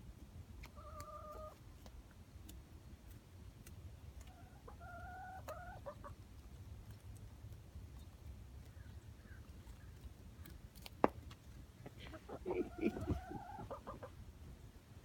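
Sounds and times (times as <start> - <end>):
hens clucking: 0.6 - 1.6, 4.2 - 6.6, 11.8 - 14.2.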